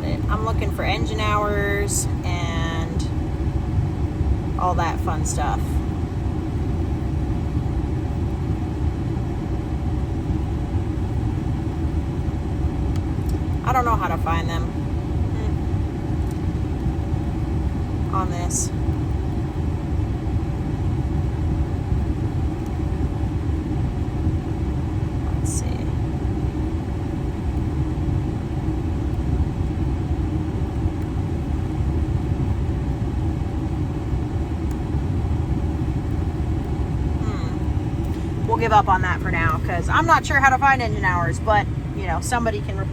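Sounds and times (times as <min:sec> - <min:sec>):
air conditioning running: 0:00.0 - 0:42.9
diesel engine idling rumble: 0:00.0 - 0:42.9
diesel engine idling: 0:35.7 - 0:42.9.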